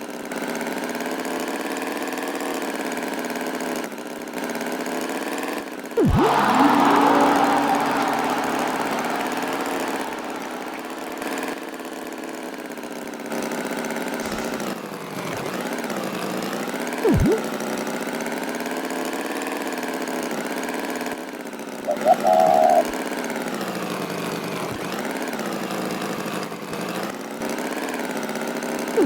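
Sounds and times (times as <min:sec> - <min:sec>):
sharp pitch swoop: 0:06.0 - 0:11.6, 0:17.0 - 0:17.5, 0:21.9 - 0:22.9.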